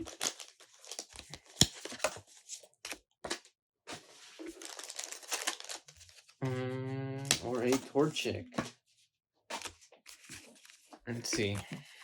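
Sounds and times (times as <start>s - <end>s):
card pack wrapper tearing and crinkling: 0.0s - 2.1s, 4.4s - 6.3s.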